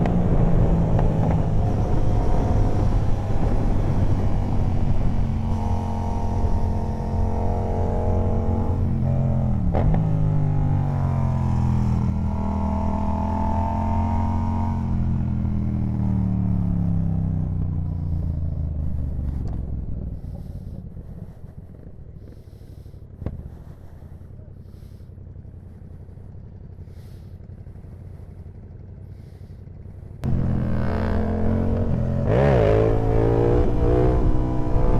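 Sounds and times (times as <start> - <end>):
motorcycle engine slowing to idle: 14.0 - 33.0.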